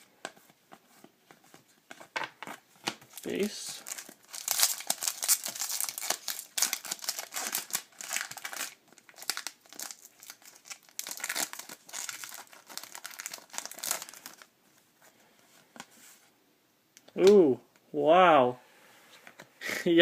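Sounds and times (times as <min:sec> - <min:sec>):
card pack wrappers crinkling and tearing: 0:01.9 - 0:14.5.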